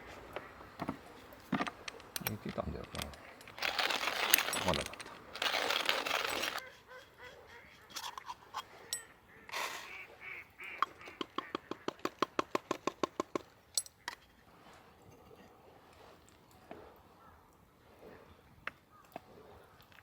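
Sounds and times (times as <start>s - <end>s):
scattered clicks: 1.8s - 6.6s
waterfowl honking quacks: 8.8s - 12.0s.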